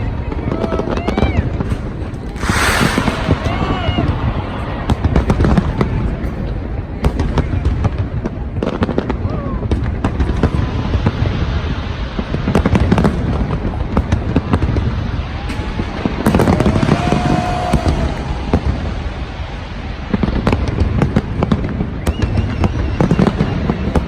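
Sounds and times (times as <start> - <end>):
fireworks bangs and crackles: 0.0 - 24.0
low booming rumble: 2.2 - 6.2.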